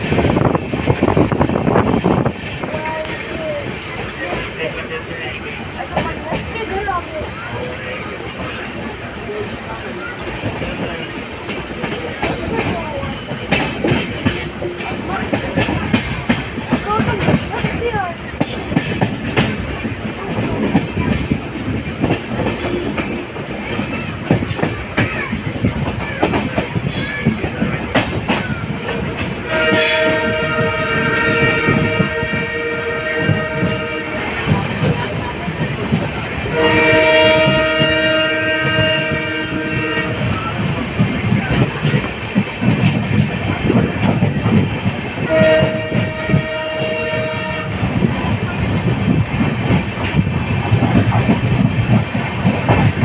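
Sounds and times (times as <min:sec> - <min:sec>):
train wheels clattering: 0:00.0 - 0:53.0
train horn: 0:29.4 - 0:34.9, 0:36.4 - 0:40.7, 0:45.2 - 0:48.1.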